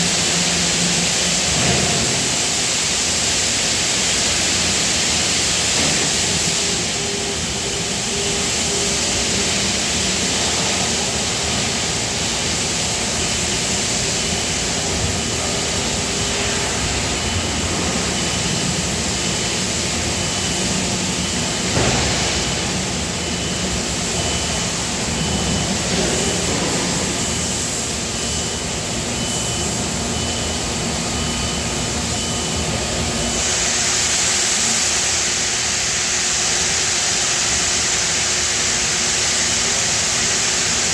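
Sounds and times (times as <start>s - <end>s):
factory machinery roar: 0.0s - 40.9s.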